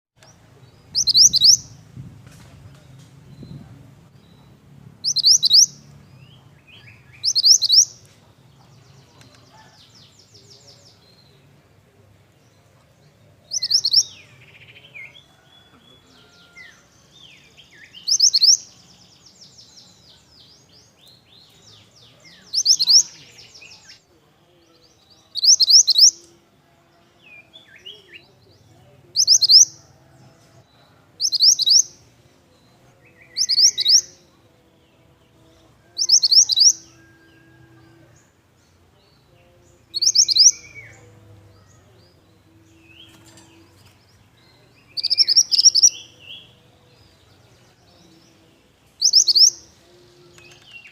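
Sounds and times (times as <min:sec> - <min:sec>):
bird twittering chirps: 0:00.9 - 0:01.7, 0:04.3 - 0:05.8, 0:06.7 - 0:08.0, 0:18.0 - 0:18.6, 0:22.4 - 0:23.9, 0:25.4 - 0:26.1, 0:29.2 - 0:29.7, 0:31.2 - 0:31.8, 0:36.0 - 0:37.2, 0:40.0 - 0:40.9, 0:44.9 - 0:46.0, 0:49.0 - 0:49.6.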